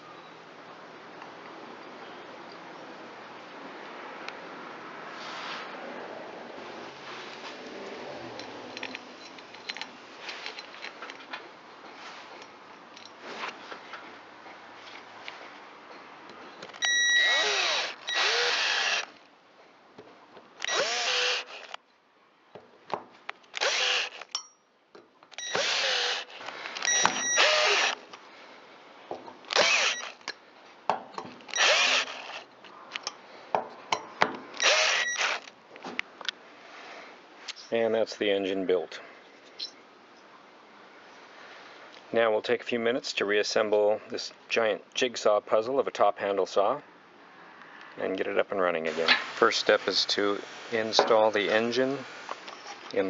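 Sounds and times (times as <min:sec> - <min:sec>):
power drill driving screws: 0:16.8 - 0:19.2, 0:20.6 - 0:21.8, 0:23.6 - 0:24.3, 0:25.4 - 0:28.0, 0:29.5 - 0:30.2, 0:31.5 - 0:32.5, 0:34.6 - 0:35.5.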